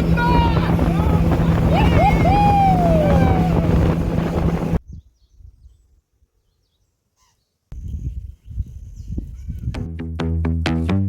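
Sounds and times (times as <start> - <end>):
motorboat engine hum: 0.0 - 4.8
wind noise: 0.0 - 6.0, 7.7 - 9.9
faint bird chirps: 4.8 - 9.2.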